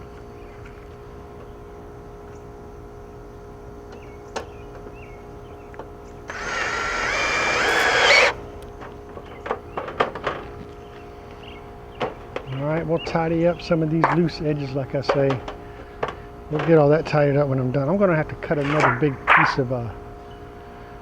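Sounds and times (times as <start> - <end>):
power drill running: 6.3 - 8.7.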